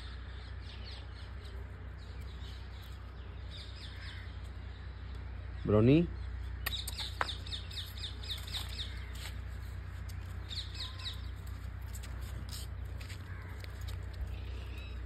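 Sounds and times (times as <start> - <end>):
small bird chirping: 0.0 - 9.4
steady low hum: 0.0 - 15.0.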